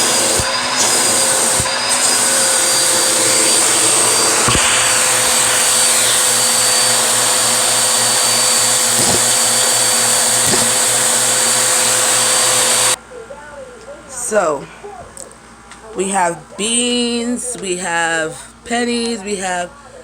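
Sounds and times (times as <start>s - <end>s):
vacuum cleaner motor whining: 0.0s - 13.0s.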